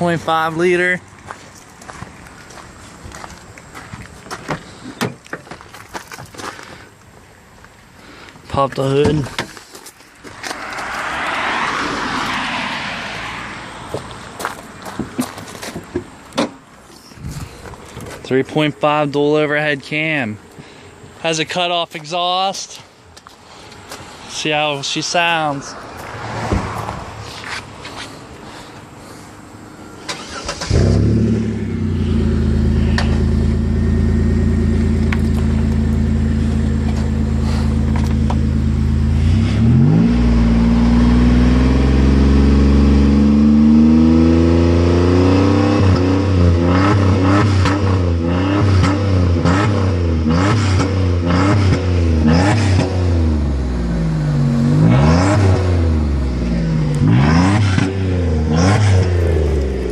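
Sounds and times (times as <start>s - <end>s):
car engine starting and revving: 10.3s - 14.0s, 30.0s - 59.9s.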